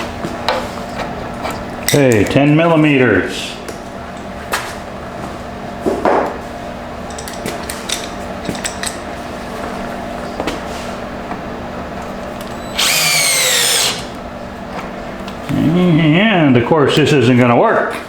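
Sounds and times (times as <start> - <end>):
power drill motor whine: 12.4 - 14.2.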